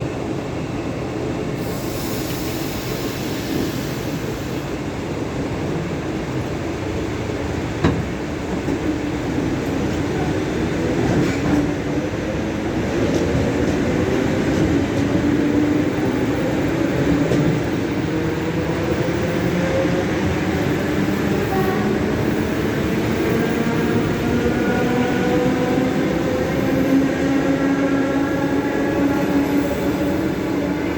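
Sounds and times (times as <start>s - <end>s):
train rumble: 0.0s - 30.9s
high hiss: 1.6s - 4.7s.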